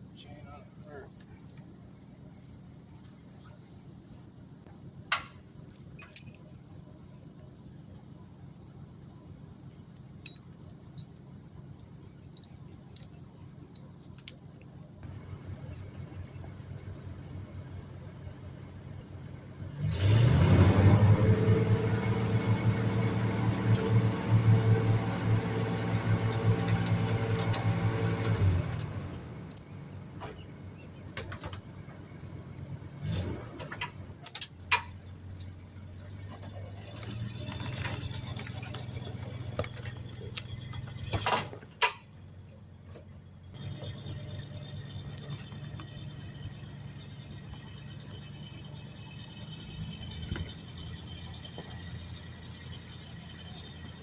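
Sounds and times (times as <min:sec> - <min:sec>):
truck engine idling: 0:00.0 - 0:19.8, 0:20.8 - 0:54.0
metal chain clinking: 0:05.9 - 0:07.2, 0:10.2 - 0:14.6.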